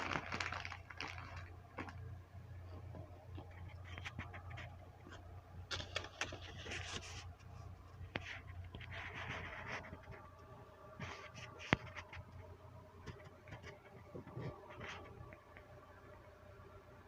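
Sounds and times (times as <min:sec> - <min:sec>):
low steady hum: 0:00.0 - 0:17.0
food rustling and scraping on plate: 0:02.9 - 0:10.4, 0:11.0 - 0:15.3.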